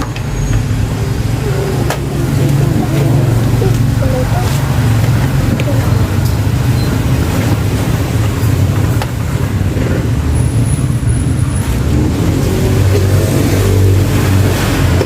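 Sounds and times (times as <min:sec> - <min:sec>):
motor vehicle rumble: 0:00.0 - 0:15.0.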